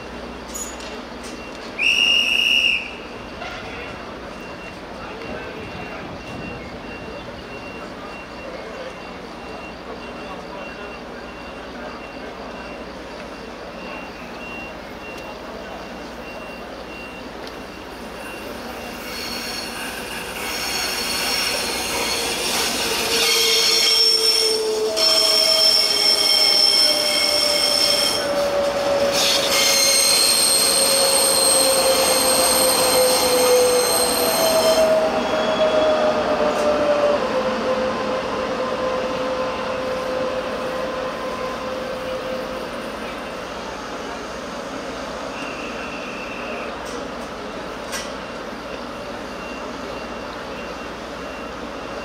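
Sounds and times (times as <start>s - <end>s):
train wheels squealing: 0.4s - 52.0s
electric train passing: 17.0s - 52.0s.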